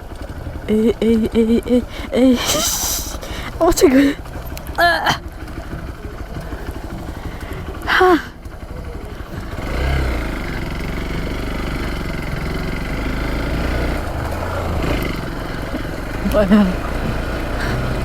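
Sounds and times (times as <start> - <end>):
dirt bike engine revving: 0.0 - 18.0
person shouting: 0.7 - 4.2, 4.8 - 5.2.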